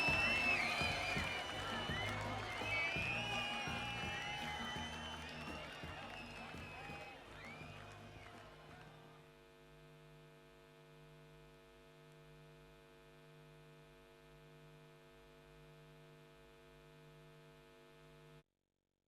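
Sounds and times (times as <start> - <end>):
faint steady hum: 0.0 - 18.4.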